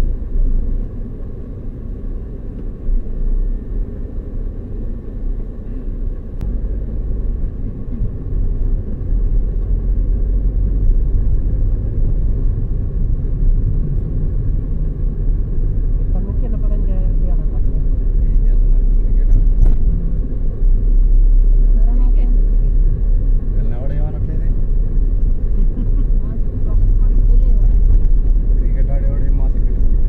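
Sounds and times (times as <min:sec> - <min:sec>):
car road and engine rumble: 0:00.0 - 0:30.0.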